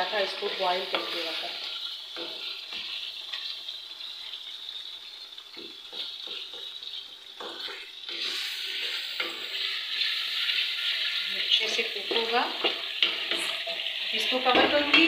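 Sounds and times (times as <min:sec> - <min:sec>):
food sizzling in a pan: 0:00.0 - 0:15.0
spatula scraping and knocking pan: 0:00.7 - 0:03.5, 0:05.5 - 0:10.6, 0:12.0 - 0:15.0.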